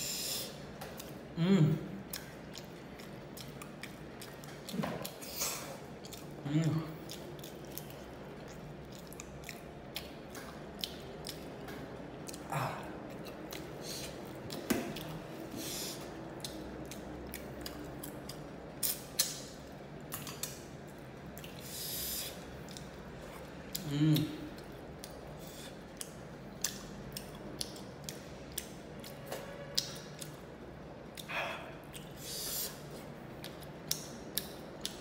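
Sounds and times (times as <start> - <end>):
chewing fried fish: 0.6 - 35.0.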